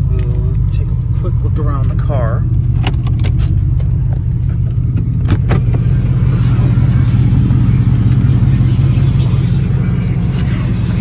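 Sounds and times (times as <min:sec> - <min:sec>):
car wash low rumble: 0:05.4 - 0:11.0.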